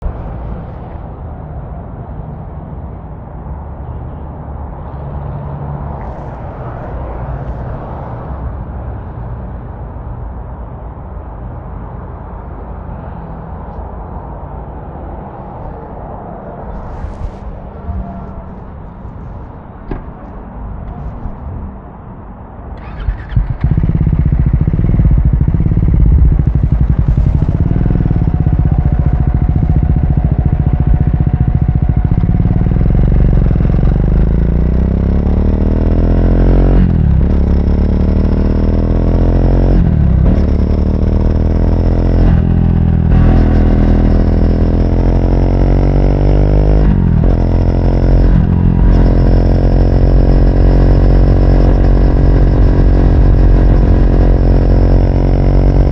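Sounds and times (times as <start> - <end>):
motorcycle engine accelerating: 0.0 - 1.0, 22.8 - 55.9.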